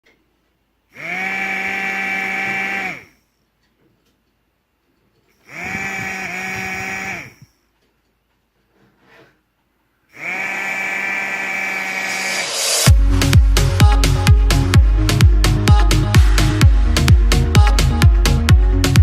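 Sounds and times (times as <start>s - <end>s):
small electric motor whining: 1.0s - 3.2s, 5.4s - 7.6s, 10.1s - 12.9s.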